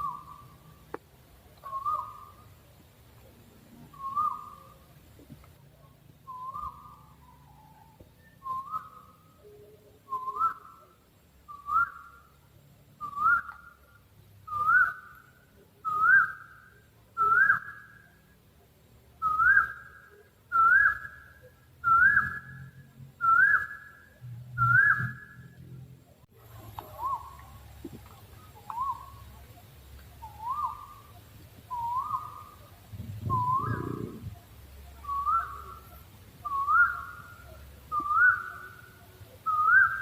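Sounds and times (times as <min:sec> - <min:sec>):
owl whistled call: 0:00.0 - 0:00.7, 0:01.6 - 0:02.5, 0:03.9 - 0:04.8, 0:06.3 - 0:09.2, 0:28.6 - 0:29.2, 0:30.2 - 0:34.4, 0:35.0 - 0:40.0.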